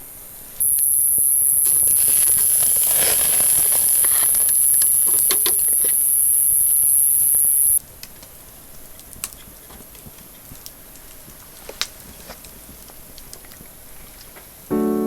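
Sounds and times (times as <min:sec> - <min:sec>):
light clicks and taps: 0:07.8 - 0:14.6.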